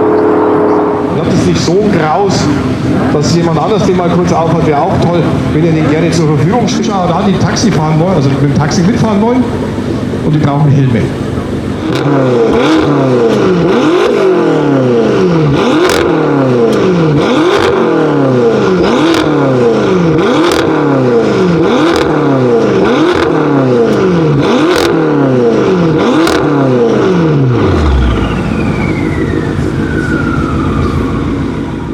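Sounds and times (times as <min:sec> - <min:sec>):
car engine idling: 0:00.0 - 0:31.9
car engine revving: 0:00.0 - 0:31.9
exhaust cracks: 0:00.0 - 0:31.9
falling whine: 0:27.4 - 0:31.9.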